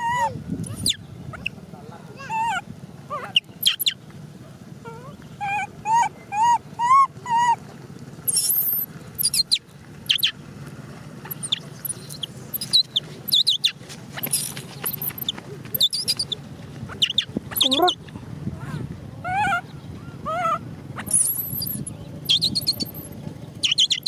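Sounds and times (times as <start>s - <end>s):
monkey squealing: 0.0s - 1.6s, 2.2s - 4.0s, 4.9s - 7.6s, 8.3s - 10.3s, 11.3s - 18.0s, 18.7s - 24.0s
monkey whimpering: 0.0s - 1.6s, 2.2s - 3.9s, 4.8s - 7.6s, 8.3s - 10.3s, 11.3s - 18.0s, 18.6s - 24.0s.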